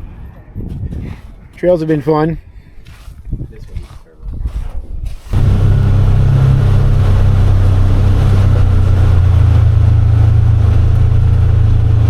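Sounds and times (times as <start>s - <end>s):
utility vehicle engine running: 5.4s - 12.0s.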